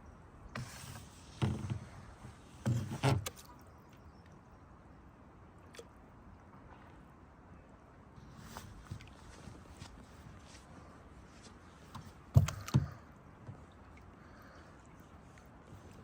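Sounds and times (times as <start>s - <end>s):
paddle splashing in water: 0.6s - 3.7s.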